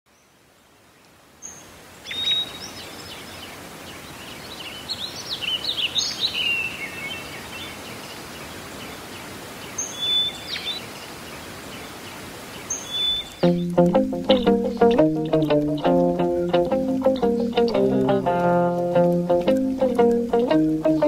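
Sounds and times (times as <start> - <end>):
steady background hiss: 0.1 - 21.0
birds chirping and singing: 12.6 - 13.6.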